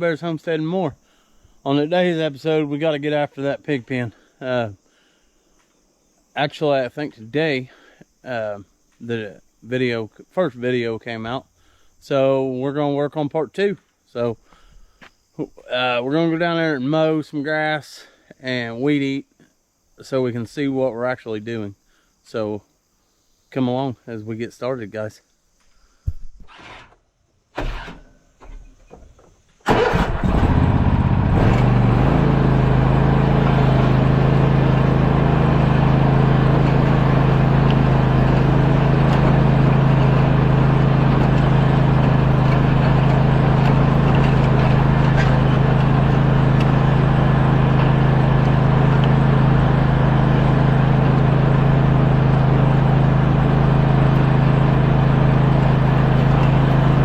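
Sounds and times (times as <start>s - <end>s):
engine starting and running: 26.5s - 27.0s, 27.6s - 29.0s, 29.6s - 57.0s.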